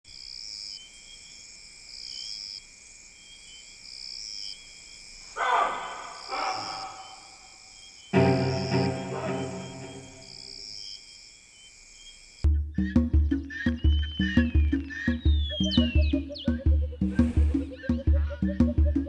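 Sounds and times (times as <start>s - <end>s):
insects chirping: 0.1s - 12.5s, 13.3s - 18.8s
sustained musical chord: 8.2s - 10.4s.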